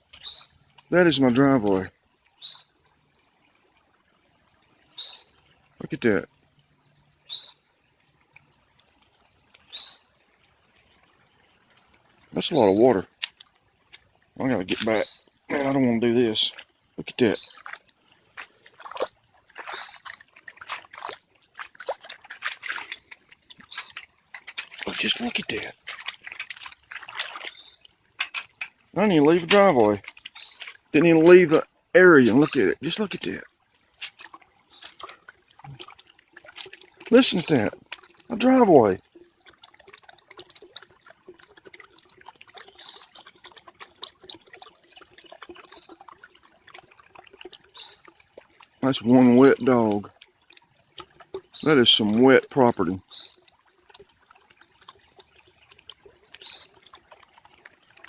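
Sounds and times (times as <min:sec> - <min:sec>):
faint trickle of water: 0:00.0 - 0:58.0
footsteps splashing through water: 0:12.0 - 0:48.8.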